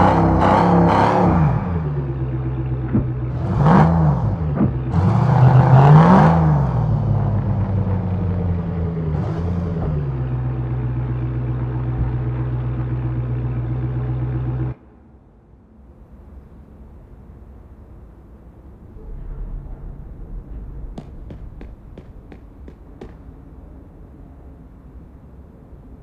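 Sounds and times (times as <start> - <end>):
car engine revving and idling: 0.0 - 14.8
faint low rumble: 0.0 - 26.0.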